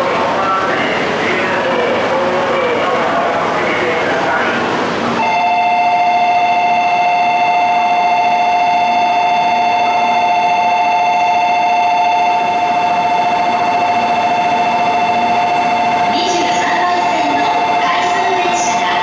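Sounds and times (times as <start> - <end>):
electronic departure bell ringing: 5.2 - 18.8.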